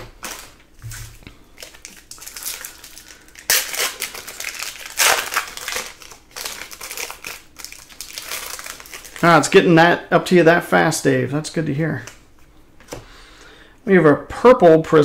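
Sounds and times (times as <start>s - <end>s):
foil wrappers crinkling: 0.0s - 9.6s.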